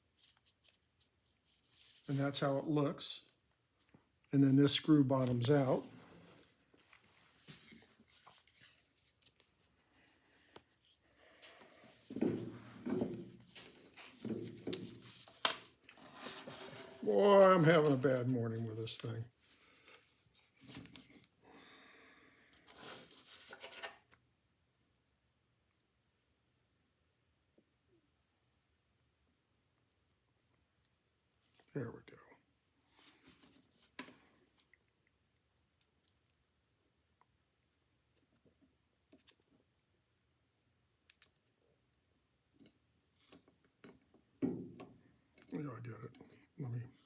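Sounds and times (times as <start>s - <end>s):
faint clicks of small metal parts: 41.0s - 41.6s.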